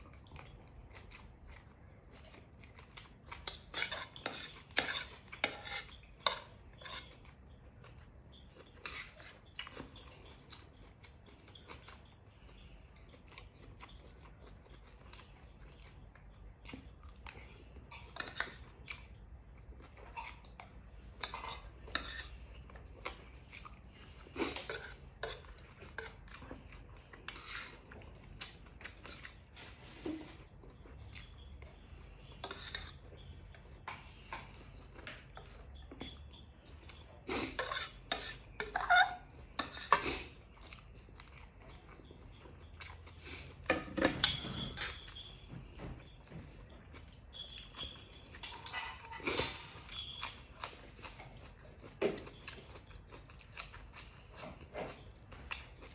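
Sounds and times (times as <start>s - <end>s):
chewing and crunching food: 0.0s - 55.9s
cutlery clinking on a plate: 3.5s - 7.2s, 43.6s - 46.7s, 47.3s - 50.8s.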